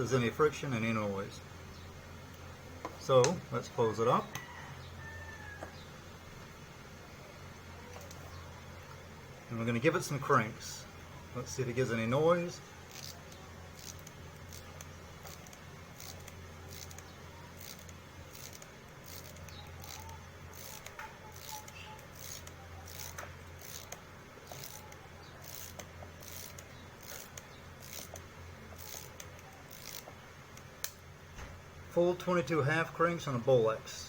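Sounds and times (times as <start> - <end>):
friction noise in winding mechanism: 11.4 - 31.0
ratcheting clicks of crank winding: 12.8 - 31.0.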